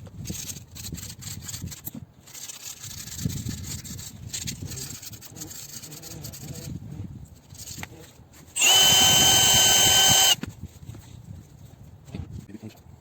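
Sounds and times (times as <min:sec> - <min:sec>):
scraping on metal shaft: 0:08.6 - 0:10.4.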